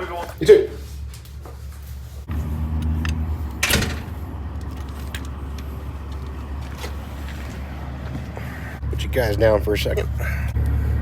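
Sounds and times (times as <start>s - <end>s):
truck engines idling: 1.9s - 11.0s
door opening: 2.7s - 5.3s
door slamming shut: 3.6s - 4.2s.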